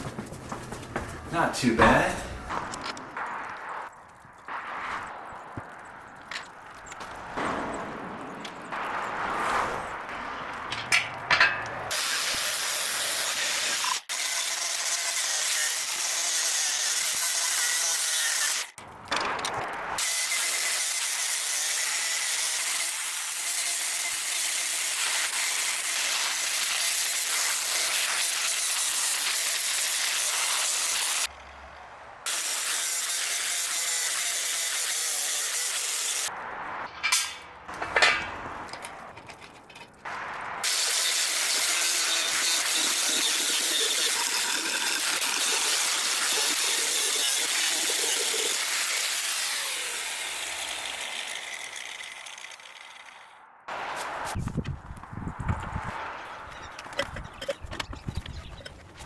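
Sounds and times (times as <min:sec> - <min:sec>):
angle grinder grinding steel: 0:40.1 - 0:53.3.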